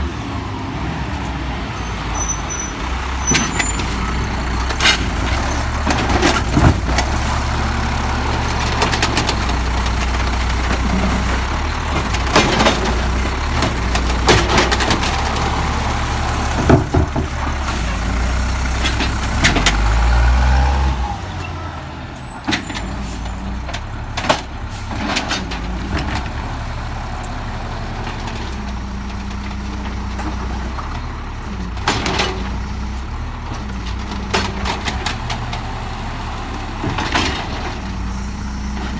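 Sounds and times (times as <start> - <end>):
garbage truck diesel engine: 0.0 - 38.9
truck knocks and clanks: 1.1 - 38.9.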